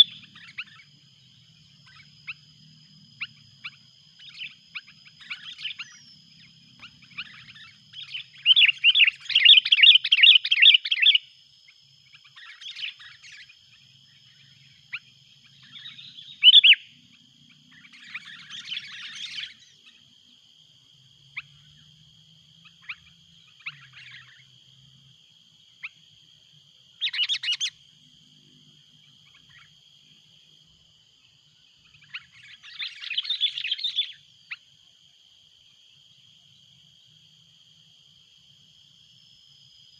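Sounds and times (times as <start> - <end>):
faint steady high tone: 0.0 - 11.4.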